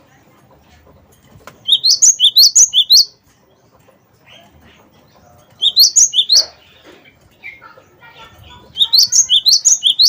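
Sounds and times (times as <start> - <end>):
bird singing: 1.6 - 7.8, 8.5 - 10.0.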